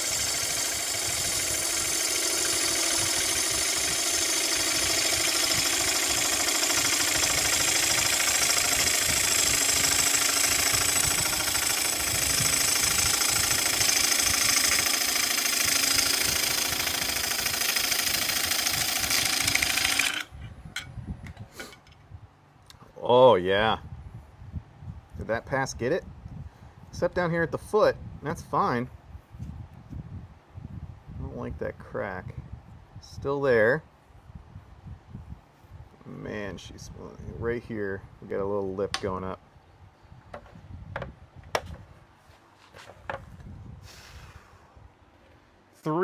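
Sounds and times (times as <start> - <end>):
wood lathe running: 0.0 - 20.3
turning tool cutting wood: 0.0 - 20.4.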